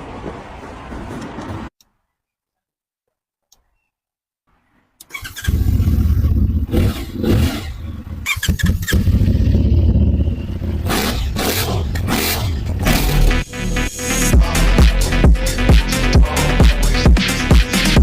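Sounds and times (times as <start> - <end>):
motorcycle engine starting and running: 5.0 - 13.6.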